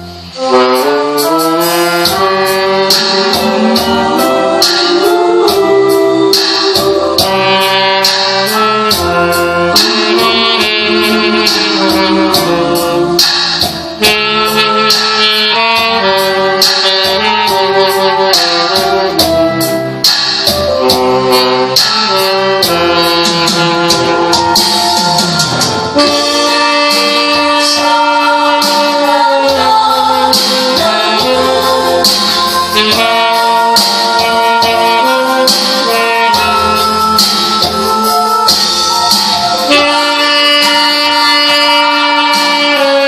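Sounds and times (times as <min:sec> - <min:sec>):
instrumental music with steady beat: 0:00.0 - 0:43.0.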